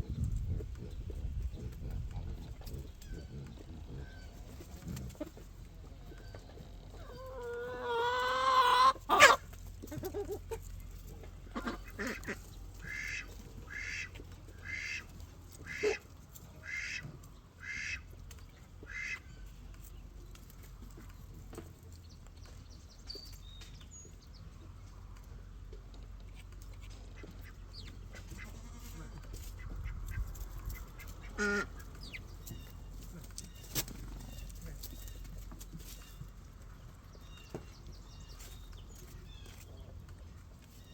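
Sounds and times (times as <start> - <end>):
birds honking: 29.4 - 33.0.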